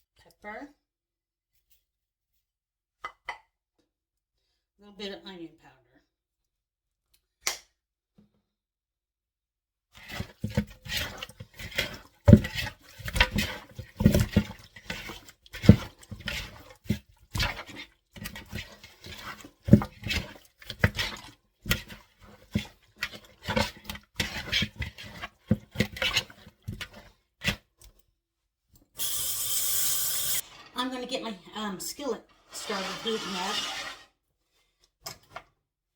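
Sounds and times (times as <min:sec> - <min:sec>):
water tap running: 0:29.0 - 0:30.5.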